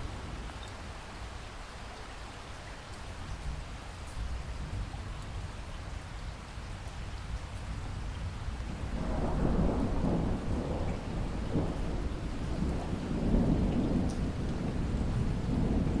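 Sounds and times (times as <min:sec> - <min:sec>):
steady rain: 0:00.0 - 0:16.0
low roll of thunder: 0:06.8 - 0:16.0.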